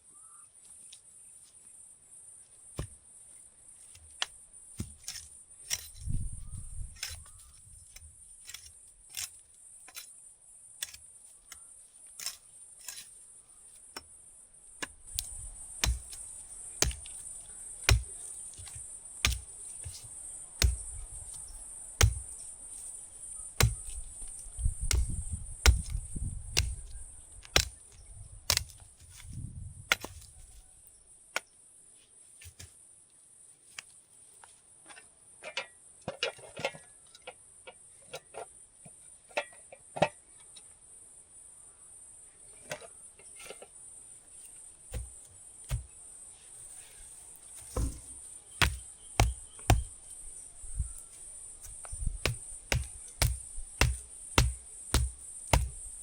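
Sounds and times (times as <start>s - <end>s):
sharp knocks: 17.9s - 22.4s, 23.6s - 24.0s, 24.8s - 26.0s, 44.9s - 45.9s, 47.7s - 50.0s, 51.6s - 56.0s
low thuds: 23.6s - 27.8s, 44.9s - 45.9s, 47.6s - 56.0s.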